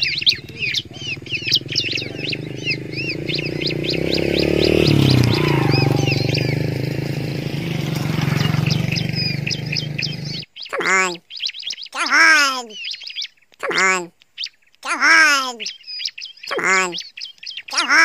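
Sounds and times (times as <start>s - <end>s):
low droning: 0.0s - 10.4s
birds chirping quickly: 0.0s - 18.0s.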